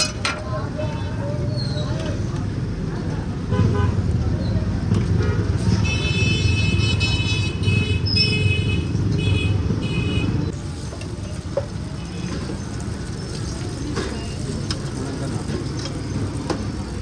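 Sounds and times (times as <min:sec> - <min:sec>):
street traffic rumbling: 0:00.0 - 0:17.0
vehicle horn tooting: 0:05.8 - 0:10.4.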